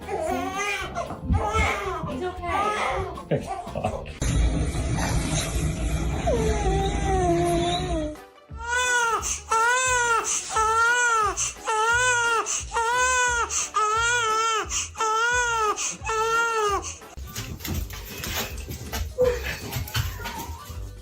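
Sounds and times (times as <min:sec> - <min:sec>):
infant crying: 0:00.0 - 0:04.0, 0:06.3 - 0:17.1.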